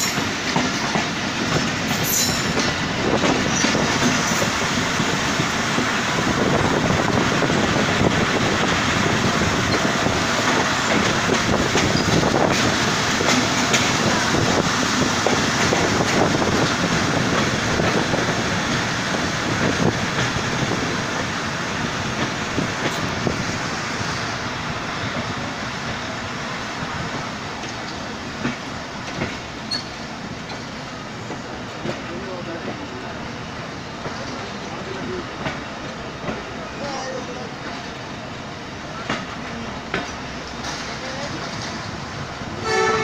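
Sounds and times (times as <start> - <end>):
train wheel and rail noise: 0.0 - 43.0.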